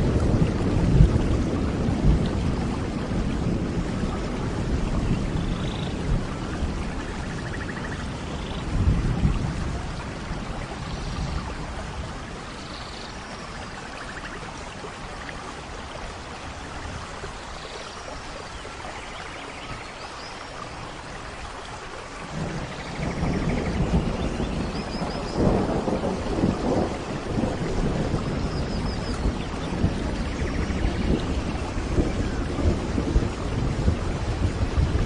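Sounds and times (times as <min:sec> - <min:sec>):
steady rain: 0:00.0 - 0:35.0
thunder rolling: 0:22.3 - 0:35.0.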